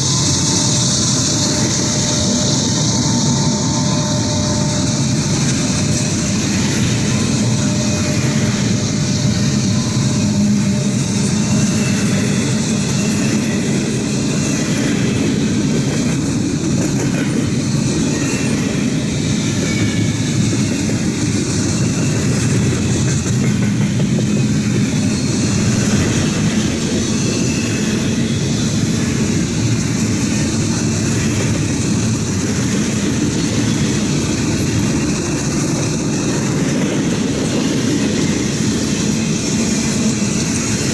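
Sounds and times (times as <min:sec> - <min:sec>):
freight train rolling past: 0:00.0 - 0:40.9.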